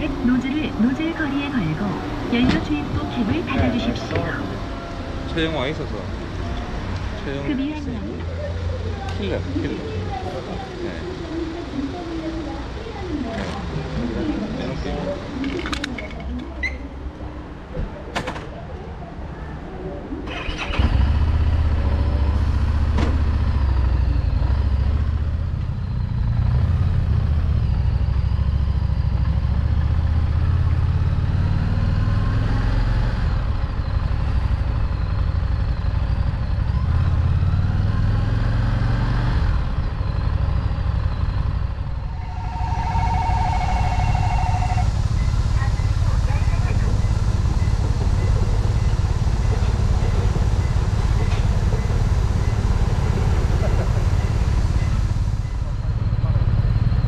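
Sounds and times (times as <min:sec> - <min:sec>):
motorcycle engine rumbling: 0:20.3 - 0:31.4, 0:39.5 - 0:57.0
two-tone electronic beep: 0:42.0 - 0:46.0.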